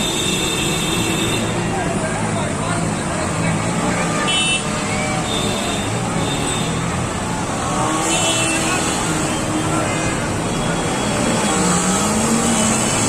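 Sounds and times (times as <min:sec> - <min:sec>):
vehicle engines running: 0:00.0 - 0:13.0.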